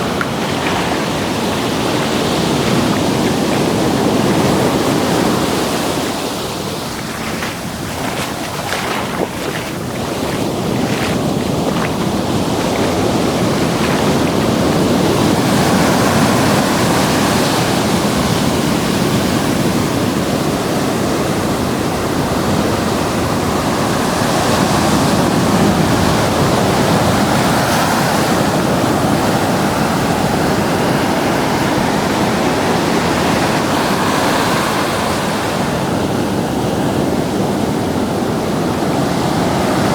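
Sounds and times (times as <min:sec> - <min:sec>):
short water splashes: 0:00.0 - 0:17.4
wind on microphone: 0:00.0 - 0:20.4
ocean surf washing up beach: 0:00.0 - 0:39.9.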